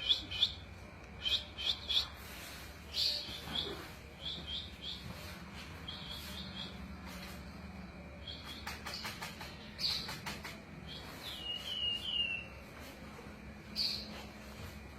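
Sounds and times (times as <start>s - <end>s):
bird chirps and whistled notes: 0.0s - 0.6s, 2.9s - 6.8s, 10.8s - 12.5s
steady low hum: 0.0s - 14.9s.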